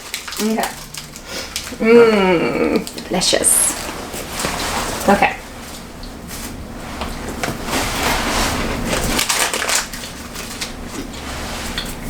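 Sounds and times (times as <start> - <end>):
wafer crunching while chewed: 5.7 - 12.0.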